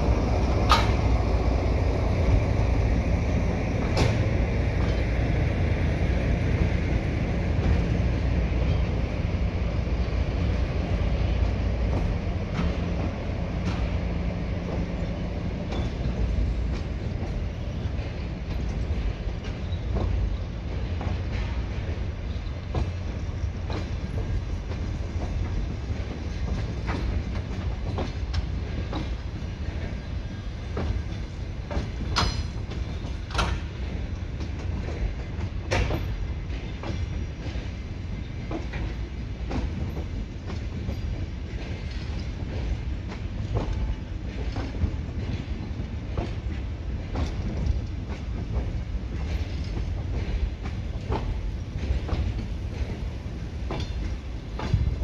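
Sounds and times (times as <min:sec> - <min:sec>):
sharp clacks and clanks: 0:30.8 - 0:37.7.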